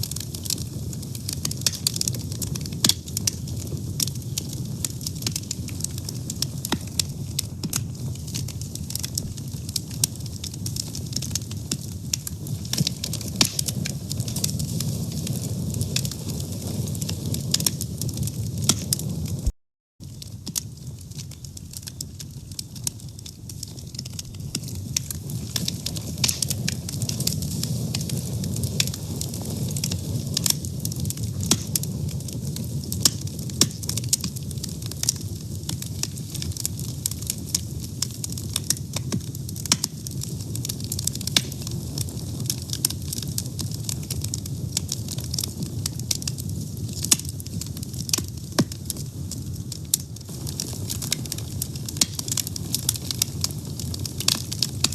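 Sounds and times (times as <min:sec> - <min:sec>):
fire burning with crackles: 0:00.0 - 0:54.9.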